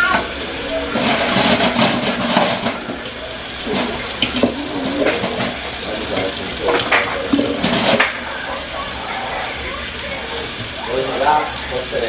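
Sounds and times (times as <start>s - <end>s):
tap running into sink: 0.0s - 8.6s.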